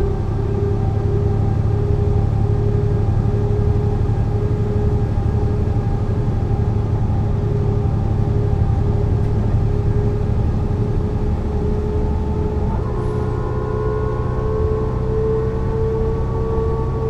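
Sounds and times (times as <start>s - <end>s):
bus engine running: 0.0s - 17.0s.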